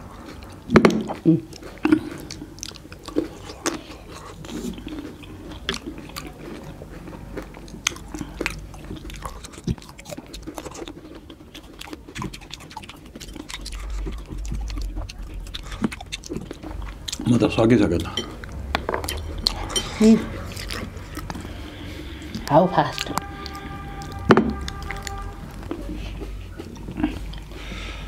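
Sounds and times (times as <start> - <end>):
chewing and biting fruit: 0.0 - 28.0.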